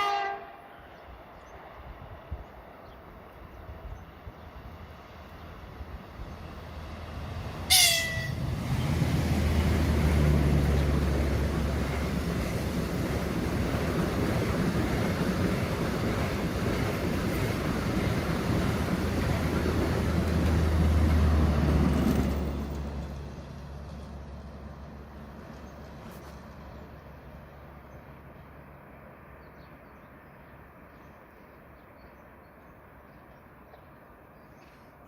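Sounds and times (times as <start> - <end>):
train horn toot: 0.0 - 0.7, 7.7 - 8.5
train passing with heavy rumble: 0.0 - 35.0.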